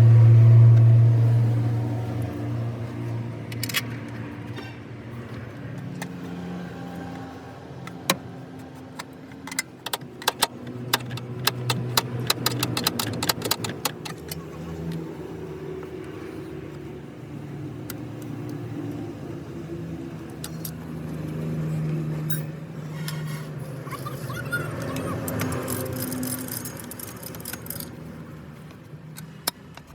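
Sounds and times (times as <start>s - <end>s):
engine running: 0.0s - 29.9s
sharp metallic clicks: 7.9s - 15.0s, 24.8s - 28.0s.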